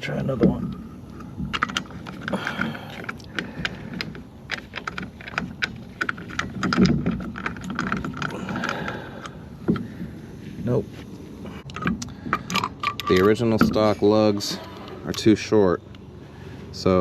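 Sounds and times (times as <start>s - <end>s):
low steady hum: 0.0s - 17.0s
lug bolts clicking in wheel hub: 0.3s - 10.2s, 11.6s - 16.1s.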